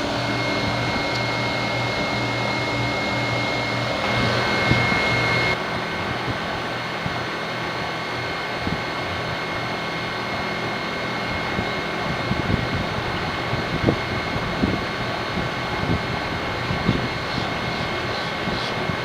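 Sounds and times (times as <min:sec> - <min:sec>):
heat pump fan whoosh: 0:00.0 - 0:19.0
multi-tone hum: 0:00.0 - 0:19.0.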